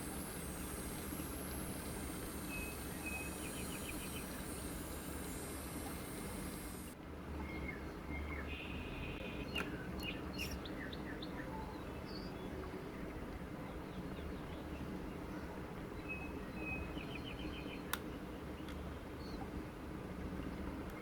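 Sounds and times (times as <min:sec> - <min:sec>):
steady low hum: 0:00.0 - 0:21.0
birds chirping and trilling: 0:00.5 - 0:06.9.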